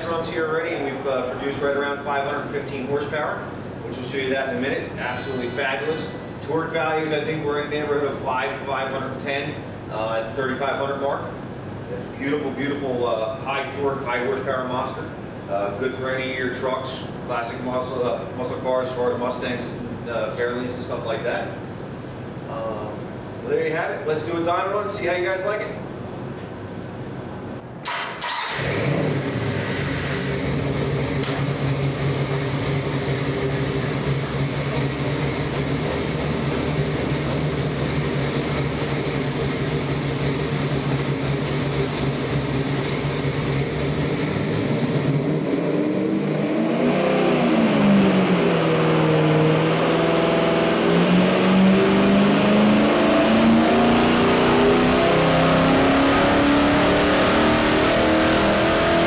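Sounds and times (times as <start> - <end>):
engine starting and idling: 27.8 - 45.2
engine revving: 28.2 - 59.0.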